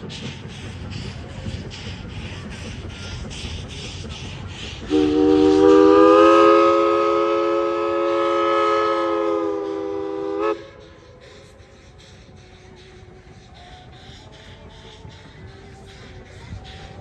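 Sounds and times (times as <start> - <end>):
train chime whistle: 4.9 - 11.5.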